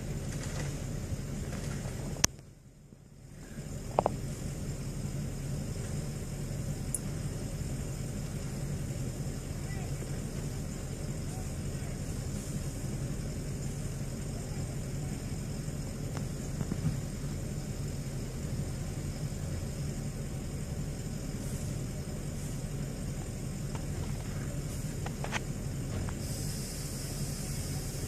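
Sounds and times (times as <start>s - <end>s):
vehicle engine rumbling: 0.0s - 28.0s
faint ticks: 6.9s - 7.1s.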